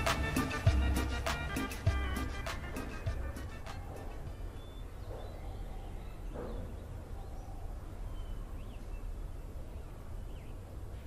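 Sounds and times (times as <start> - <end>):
faint bird chirps: 4.3 - 11.0.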